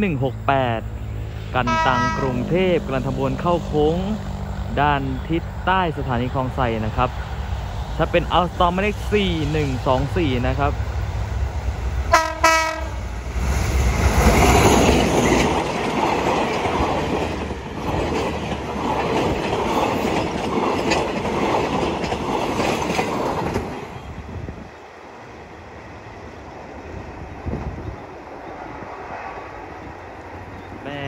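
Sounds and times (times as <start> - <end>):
train rumbling past: 0.0 - 31.0
train horn blast: 1.6 - 2.7, 12.1 - 13.0.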